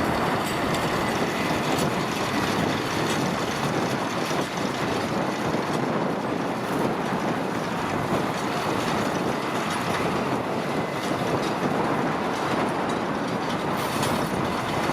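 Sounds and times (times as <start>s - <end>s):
hay machinery clattering: 0.0s - 6.1s
tractor engine running: 0.0s - 14.9s.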